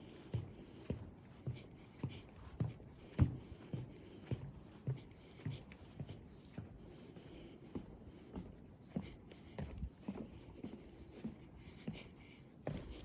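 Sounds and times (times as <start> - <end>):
footsteps on wooden boardwalk: 7.7 - 13.0.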